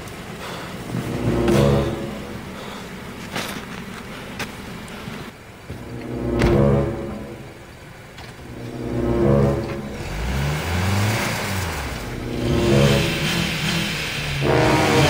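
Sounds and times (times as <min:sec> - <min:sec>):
suv engine revving: 0:00.0 - 0:15.0
hiss: 0:10.7 - 0:15.0.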